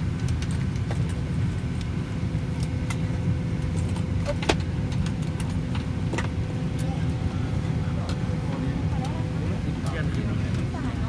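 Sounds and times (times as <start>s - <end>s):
faint constant hum: 0.0s - 11.0s.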